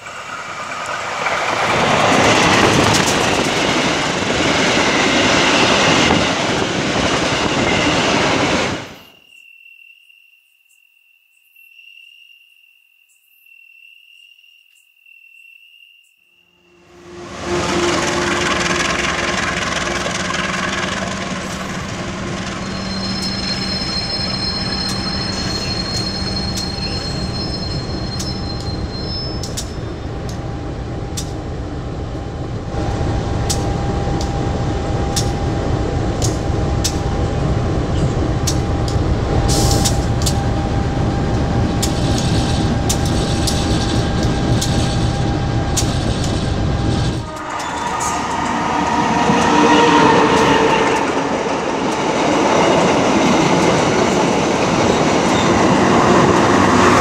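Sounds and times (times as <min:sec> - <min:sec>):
train rail rumble: 0:00.0 - 0:09.1, 0:16.7 - 0:57.0
high wheel squeal: 0:16.6 - 0:30.1, 0:41.5 - 0:51.6.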